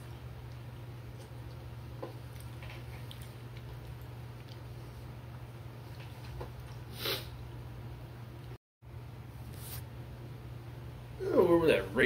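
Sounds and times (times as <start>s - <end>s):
steady low hum: 0.0s - 12.0s
wet mouth clicks chewing: 0.5s - 4.8s.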